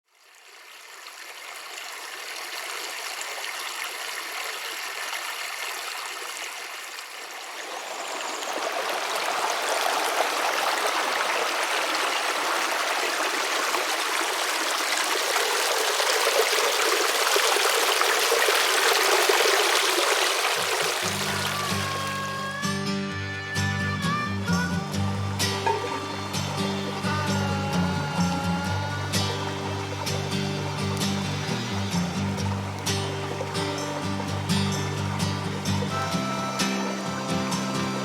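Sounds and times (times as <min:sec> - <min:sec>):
creek water flowing: 0:00.0 - 0:22.8, 0:23.5 - 0:38.0.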